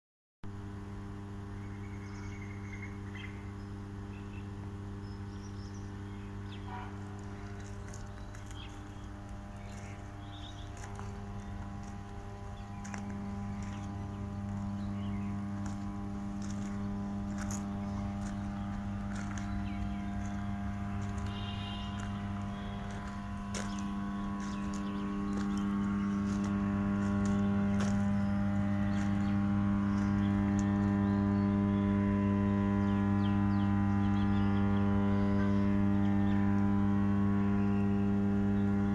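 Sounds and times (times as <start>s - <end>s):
power transformer humming: 0.5s - 38.9s.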